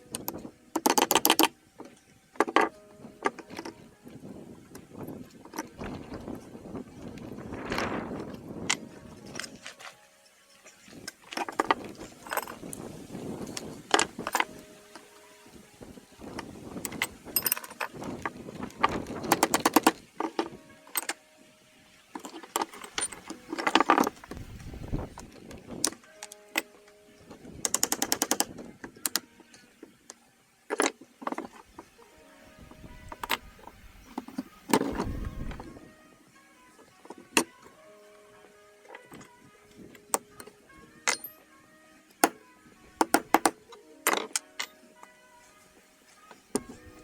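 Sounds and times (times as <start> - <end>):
metal parts clinking and knocking: 0.1 - 3.7, 11.3 - 12.7, 13.4 - 15.0, 16.8 - 21.2, 22.2 - 25.0, 27.6 - 29.2, 40.1 - 41.4, 43.0 - 45.1.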